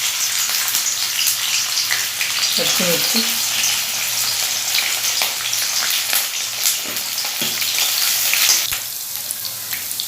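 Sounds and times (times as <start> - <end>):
food sizzling in hot oil: 0.0 - 10.0
spoon tapping a pan: 6.8 - 7.9.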